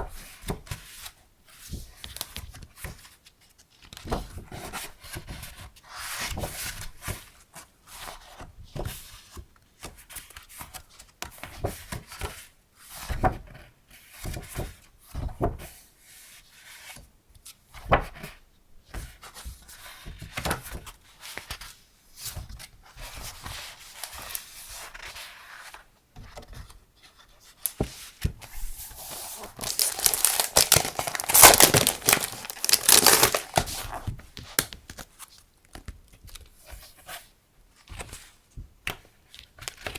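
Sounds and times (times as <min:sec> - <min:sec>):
paper rustling and crinkling: 0:19.2 - 0:37.2.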